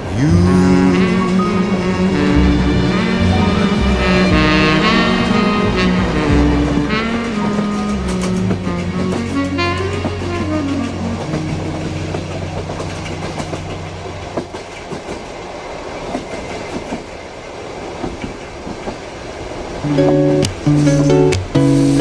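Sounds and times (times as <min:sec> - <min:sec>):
song held notes: 0:00.0 - 0:14.4, 0:19.9 - 0:22.0
wheels clattering over rails: 0:00.0 - 0:21.7
train carriage rumbling: 0:00.0 - 0:22.0.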